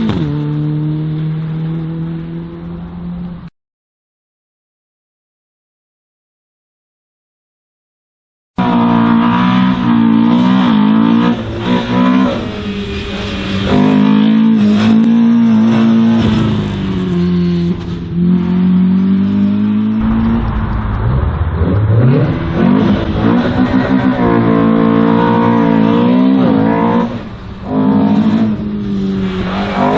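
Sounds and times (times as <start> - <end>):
race car engine revving: 8.6 - 29.9.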